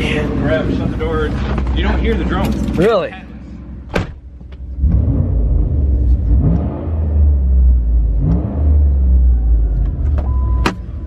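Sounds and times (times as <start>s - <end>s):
engine revving blips: 4.8s - 10.8s.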